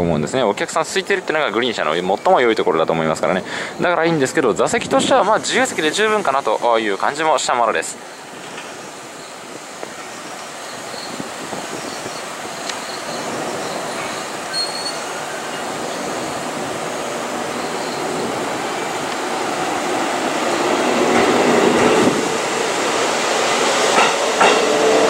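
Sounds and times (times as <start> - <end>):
standing train hum: 8.0 - 25.0
train wheel noise: 8.3 - 25.0.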